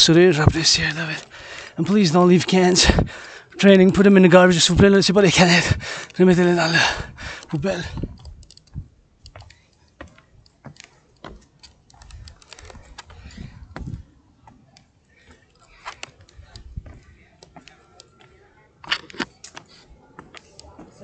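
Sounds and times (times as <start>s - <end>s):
light clicks and taps: 7.4s - 14.0s.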